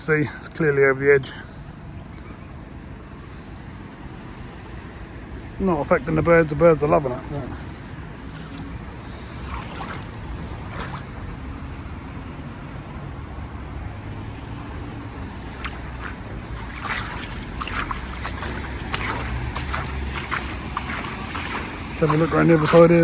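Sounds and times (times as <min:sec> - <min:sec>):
floodwater lapping and sloshing: 0:03.2 - 0:11.5, 0:14.3 - 0:23.0.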